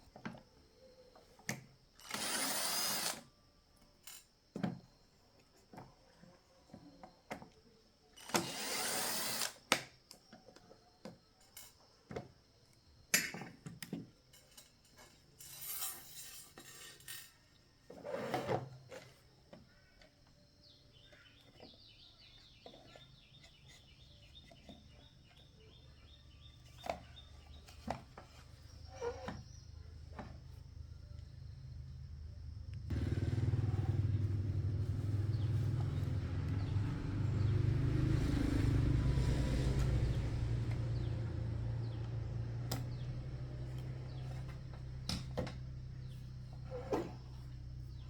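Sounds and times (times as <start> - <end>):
low engine hum: 31.4 - 46.6.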